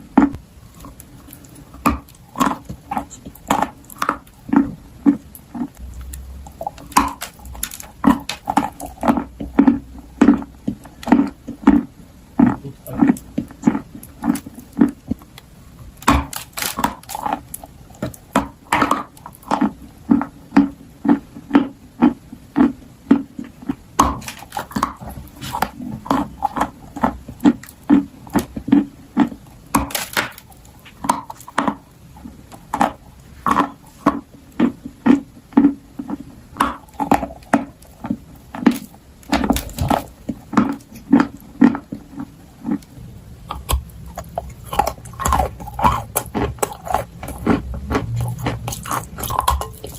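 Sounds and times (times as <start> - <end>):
crunching and chewing clay: 0.0 - 49.9.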